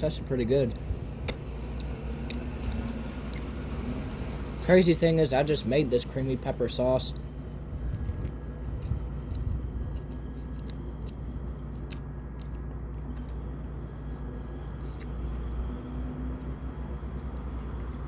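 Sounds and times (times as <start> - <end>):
steady low hum: 0.0 - 18.0
person chewing food: 0.6 - 3.5, 7.1 - 18.0
wet mouth clicks: 8.2 - 13.5.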